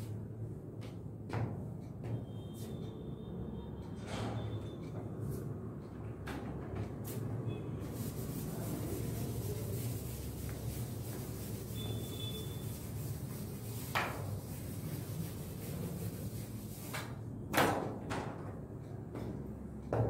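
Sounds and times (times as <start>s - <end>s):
room hum: 4.6s - 17.5s
duster rubbing chalkboard: 7.0s - 17.2s.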